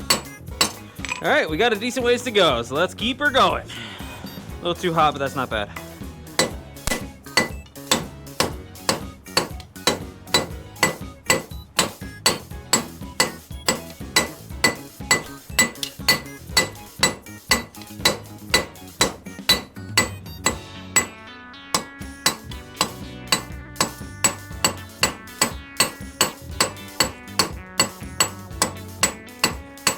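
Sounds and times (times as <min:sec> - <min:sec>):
hammer striking hot metal on anvil: 0:00.0 - 0:00.9, 0:06.3 - 0:21.2, 0:21.8 - 0:29.9
background music: 0:00.0 - 0:29.9.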